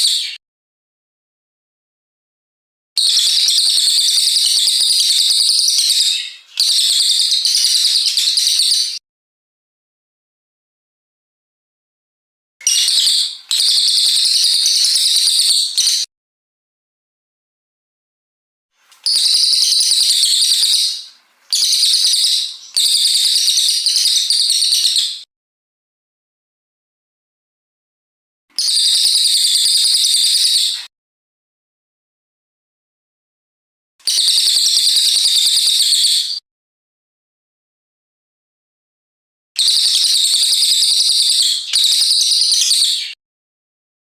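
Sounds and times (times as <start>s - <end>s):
songbird chattering song: 3.0s - 9.0s, 12.6s - 16.0s, 18.8s - 25.2s.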